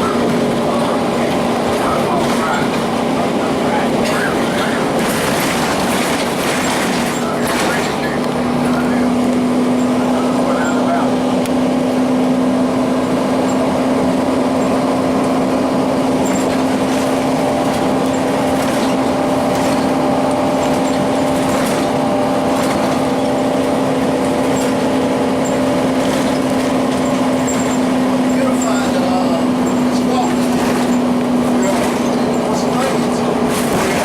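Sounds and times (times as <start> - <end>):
diesel bus engine droning: 0.0 - 34.0.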